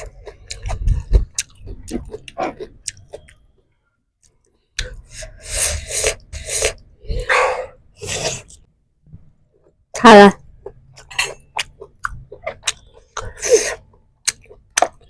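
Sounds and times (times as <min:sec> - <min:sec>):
person chewing food: 0:00.0 - 0:03.6, 0:04.2 - 0:07.3, 0:10.5 - 0:15.0
noisy mouth sounds: 0:04.8 - 0:08.6.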